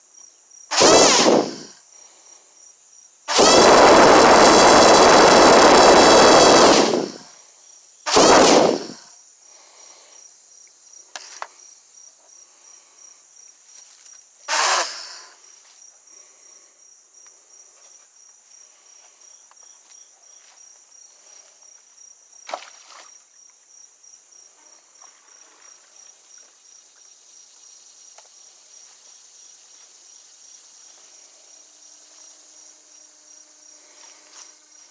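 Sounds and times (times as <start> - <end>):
crickets chirping: 0.0 - 22.4, 23.1 - 34.9
brief loud bursts: 0.7 - 1.7, 3.3 - 7.2, 8.1 - 9.0, 14.5 - 15.3
loud noise: 0.7 - 1.7, 3.3 - 7.2, 8.1 - 9.0.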